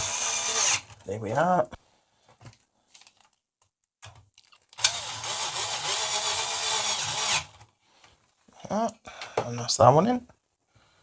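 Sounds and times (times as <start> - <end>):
electric screwdriver driving screw: 0.0 - 0.9, 4.8 - 7.6.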